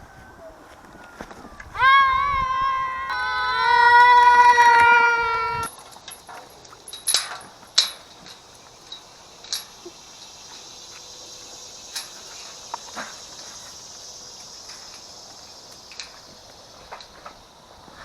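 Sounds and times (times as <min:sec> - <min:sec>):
high insect chirring: 0:02.8 - 0:17.9.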